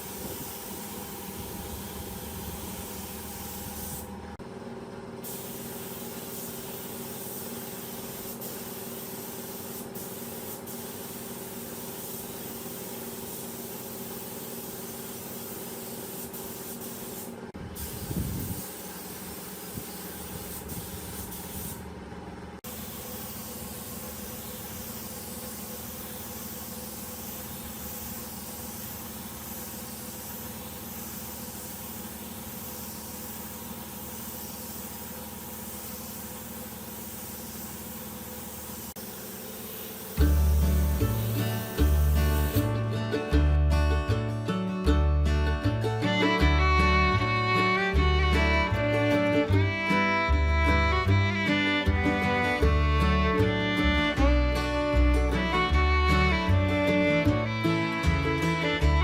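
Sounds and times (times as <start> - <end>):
steady hiss: 0.0 - 4.1, 5.3 - 21.8, 22.7 - 42.8.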